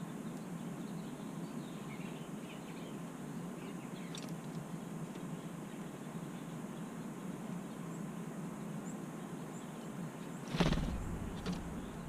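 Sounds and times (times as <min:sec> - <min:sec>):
small birds chirping: 0:00.0 - 0:12.0
bump or rustle: 0:10.5 - 0:12.0
low background rumble: 0:10.5 - 0:12.0.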